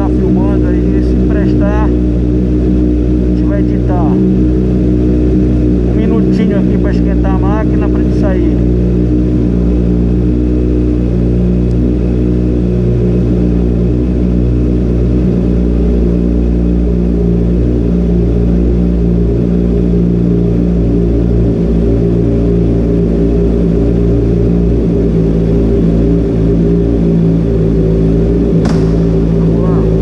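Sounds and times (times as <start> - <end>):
motorcycle engine idling: 22.5 - 30.0.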